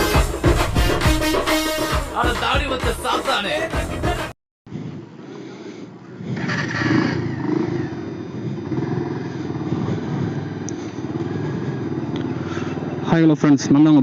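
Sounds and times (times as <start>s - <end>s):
motorcycle engine revving: 6.2s - 14.0s.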